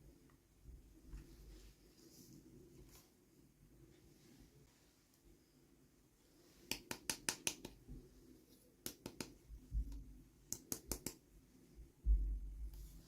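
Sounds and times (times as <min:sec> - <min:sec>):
soft low thump: 0:12.0 - 0:12.8.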